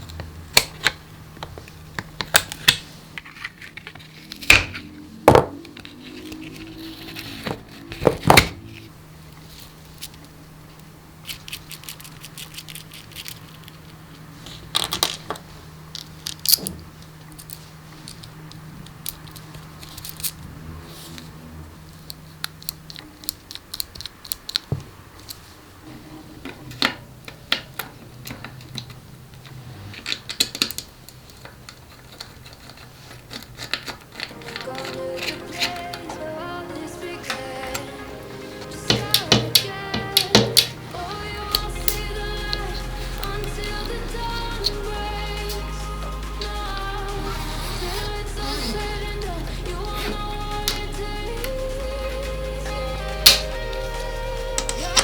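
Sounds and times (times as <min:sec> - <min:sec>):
clicks taps and scrapes on parts: 0:26.7 - 0:36.0.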